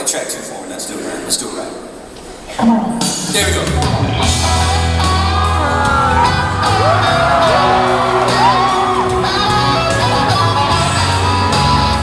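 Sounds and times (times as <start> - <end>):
backing track with beat and guitar: 2.8 - 12.0
high swooping whoops: 5.3 - 9.2.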